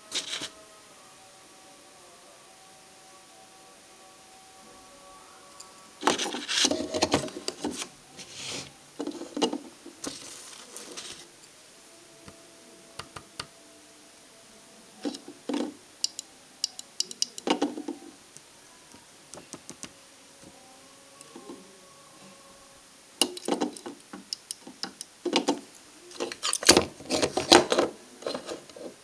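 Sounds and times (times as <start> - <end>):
tools being handled: 0.1 - 0.5, 5.6 - 11.3, 15.0 - 18.0, 23.2 - 28.9.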